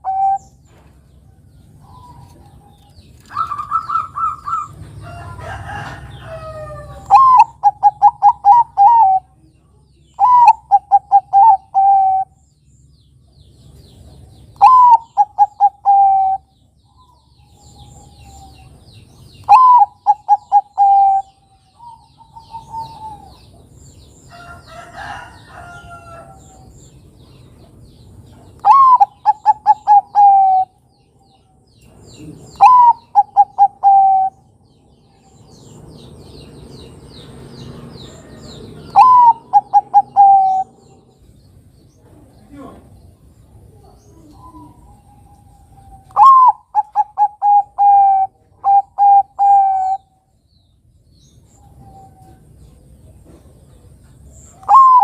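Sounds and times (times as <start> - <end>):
dove cooing: 0.0 - 0.6, 3.3 - 4.8, 6.4 - 9.4, 10.2 - 12.4, 14.6 - 16.5, 19.4 - 23.6, 28.6 - 30.8, 32.2 - 34.6, 38.1 - 41.1, 43.6 - 50.1, 54.5 - 55.0.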